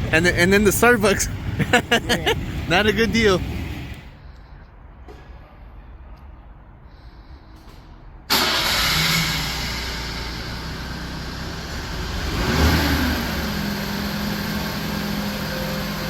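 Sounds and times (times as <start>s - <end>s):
vehicle engine running: 0.0s - 4.1s.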